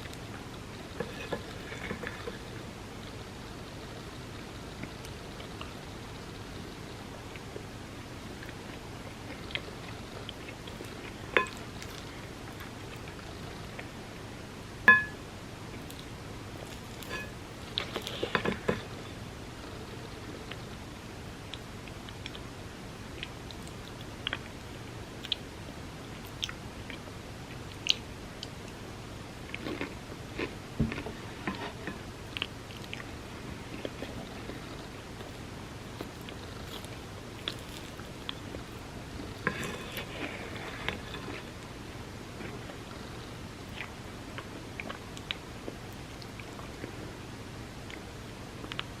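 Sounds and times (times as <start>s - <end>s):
soft eating sounds: 0.0s - 49.0s
spoon clinking against a dish: 14.9s - 15.2s
person chewing: 15.7s - 19.0s, 29.5s - 41.6s.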